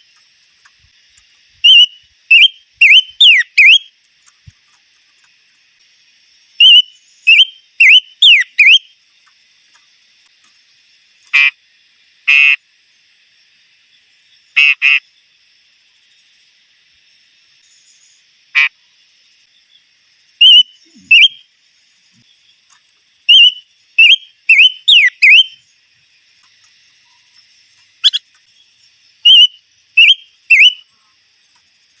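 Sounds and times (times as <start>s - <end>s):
songbird whistled notes: 1.6s - 3.9s, 6.6s - 8.9s, 20.4s - 21.4s, 23.3s - 25.6s, 29.3s - 30.9s
bird rasping buzzes: 12.2s - 12.6s.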